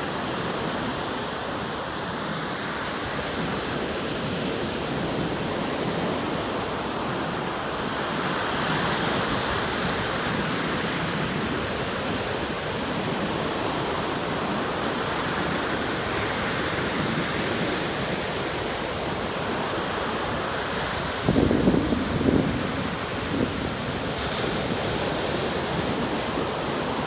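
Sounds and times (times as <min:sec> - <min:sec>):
surf washing onto shore: 0:00.0 - 0:27.0
wind gusting on microphone: 0:19.3 - 0:27.0.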